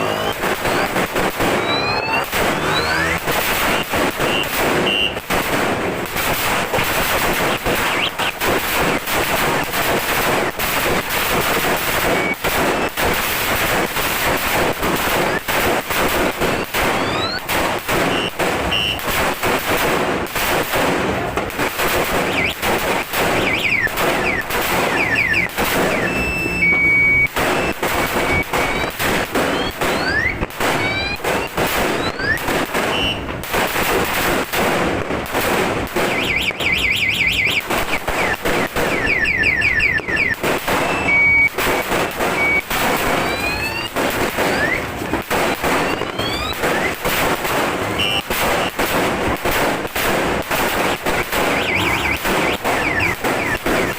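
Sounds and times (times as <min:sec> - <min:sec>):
car alarm chirps and beeps: 0:00.0 - 0:05.3, 0:07.0 - 0:09.7, 0:10.4 - 0:19.1, 0:22.2 - 0:33.3, 0:36.0 - 0:47.2, 0:47.8 - 0:48.8, 0:51.0 - 0:53.9
firecrackers going off: 0:00.0 - 0:53.9.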